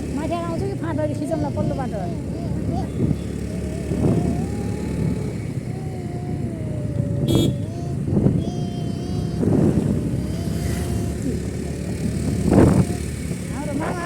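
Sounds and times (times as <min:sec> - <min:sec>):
vehicle engine rumble and whine: 0:00.0 - 0:14.0.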